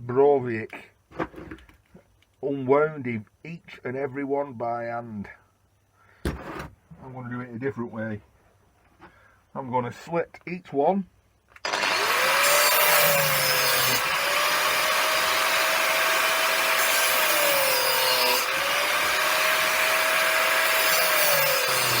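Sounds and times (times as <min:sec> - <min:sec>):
power tool cutting copper windings: 0:11.6 - 0:22.0.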